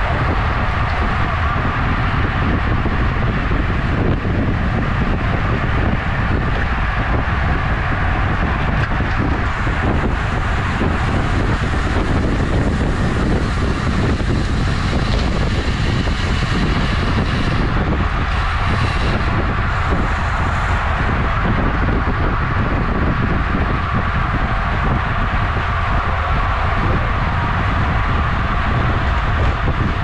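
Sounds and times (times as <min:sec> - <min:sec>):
road noise: 0:00.0 - 0:30.0
wind rushing on microphone: 0:00.0 - 0:30.0.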